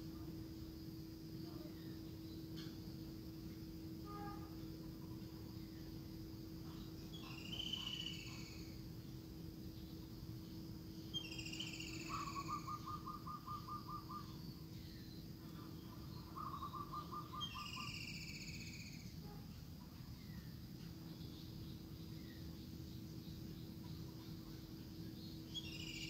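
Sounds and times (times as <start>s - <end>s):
steady low hum: 0.0s - 26.0s
birds calling: 11.1s - 19.0s.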